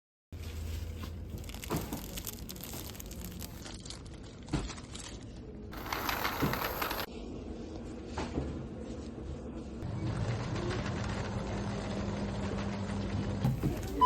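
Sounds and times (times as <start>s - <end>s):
plastic packaging crinkling: 0.4s - 7.1s.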